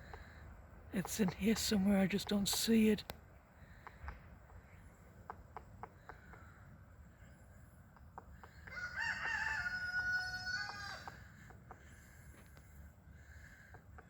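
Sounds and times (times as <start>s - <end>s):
rooster crowing: 8.6s - 11.2s.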